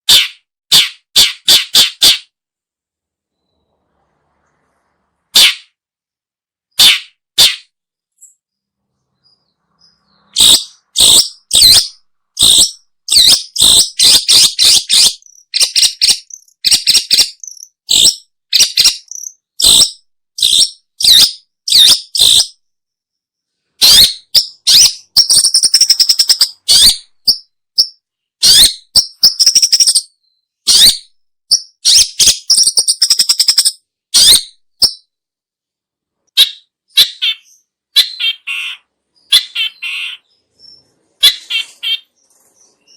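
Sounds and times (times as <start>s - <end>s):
bird harsh scratchy calls: 0.0s - 2.3s, 5.2s - 5.8s, 6.7s - 8.3s, 9.0s - 22.6s, 23.7s - 30.1s, 30.7s - 35.0s, 36.4s - 42.9s
bird buzzy chattering: 10.3s - 22.5s.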